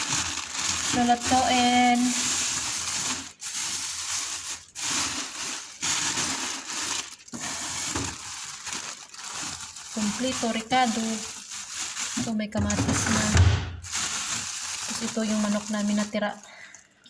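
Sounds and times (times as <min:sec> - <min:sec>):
plastic bags rustling and crinkling: 0:00.0 - 0:17.0.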